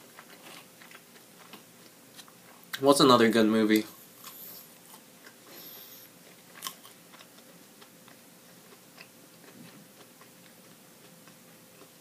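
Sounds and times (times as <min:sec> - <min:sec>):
chewing soggy fries: 0:00.0 - 0:02.8, 0:04.2 - 0:12.0.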